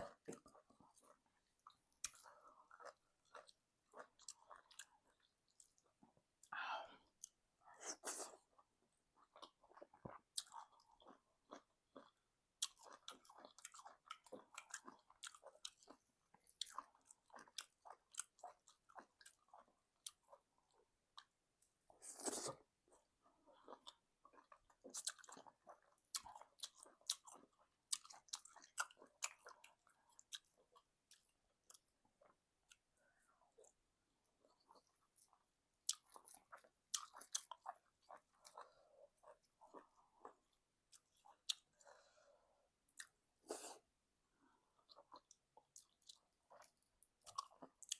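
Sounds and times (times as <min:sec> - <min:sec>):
person chewing with mouth sounds: 0:00.0 - 0:42.0, 0:42.9 - 0:43.9, 0:44.6 - 0:47.9.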